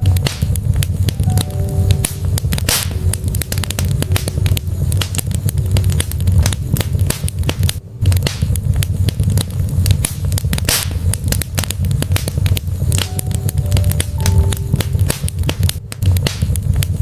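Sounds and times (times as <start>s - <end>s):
logs crackling and popping: 0.0s - 17.0s
low rumble of flame: 0.0s - 17.0s.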